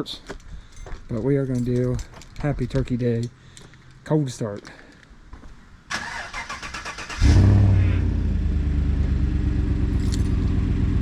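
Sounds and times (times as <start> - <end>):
engine starter cranking: 5.9 - 7.4.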